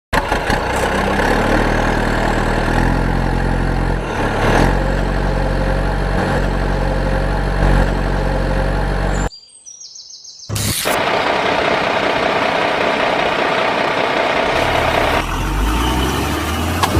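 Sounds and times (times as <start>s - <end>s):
heavy vehicle engine running: 0.1s - 9.3s, 10.5s - 16.9s.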